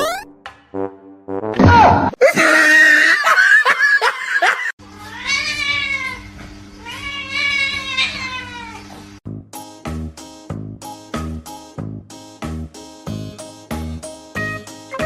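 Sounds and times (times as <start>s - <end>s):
cat yowling and meowing: 5.0s - 8.9s.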